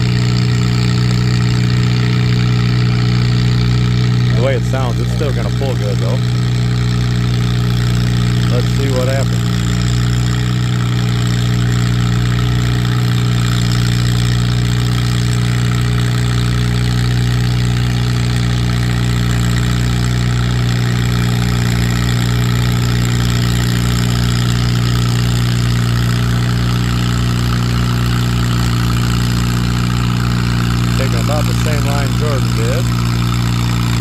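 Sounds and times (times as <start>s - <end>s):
tractor engine misfiring: 0.0s - 34.0s
man commenting: 4.3s - 6.3s, 8.4s - 9.4s, 30.9s - 32.9s.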